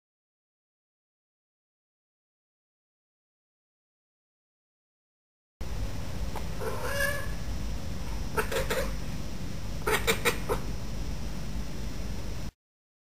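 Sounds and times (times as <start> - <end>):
cat chirping and chattering: 6.6 - 7.4, 8.3 - 9.0, 9.8 - 10.7.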